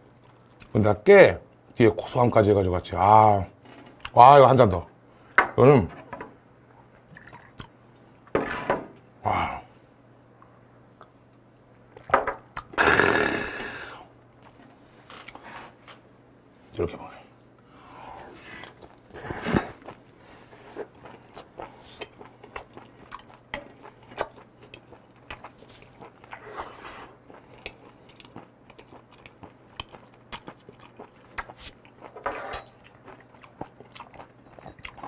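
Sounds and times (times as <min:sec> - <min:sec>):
close-miked chewing: 0:00.0 - 0:00.8, 0:18.6 - 0:35.0.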